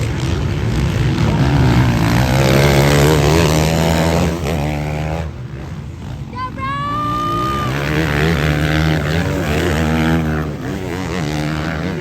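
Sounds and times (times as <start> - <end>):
motocross bike engines: 0.0 - 12.0.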